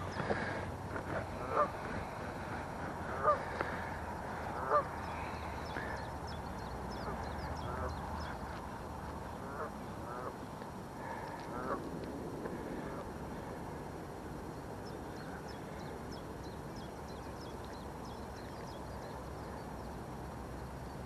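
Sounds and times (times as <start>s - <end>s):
small birds chirping: 0.0s - 11.6s, 14.6s - 21.0s
waterfowl honking: 1.2s - 1.8s, 3.1s - 6.0s, 9.4s - 10.4s.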